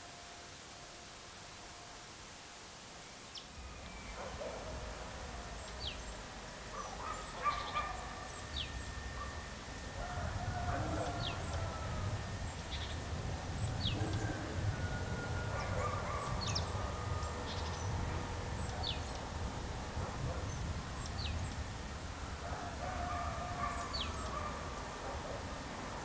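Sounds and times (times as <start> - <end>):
high falling bird calls: 3.1 - 19.4, 23.4 - 24.8
lower drawn-out bird calls: 3.3 - 25.7
low outdoor rumble: 3.6 - 26.0.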